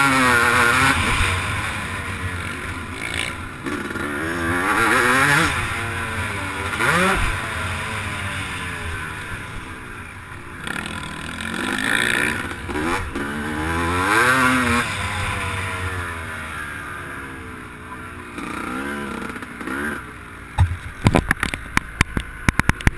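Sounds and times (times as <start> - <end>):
motorcycle engine throttle blips: 20.5 - 22.9
sharp knocks: 20.6 - 22.9.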